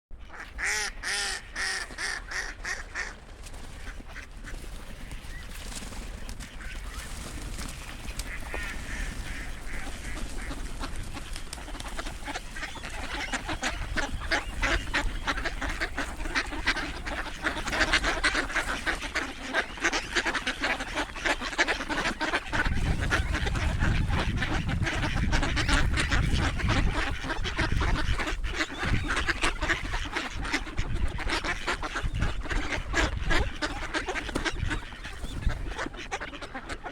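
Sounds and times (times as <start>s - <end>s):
ducks quacking: 0.2s - 36.9s
wind buffeting microphone: 7.0s - 19.0s, 22.0s - 36.1s.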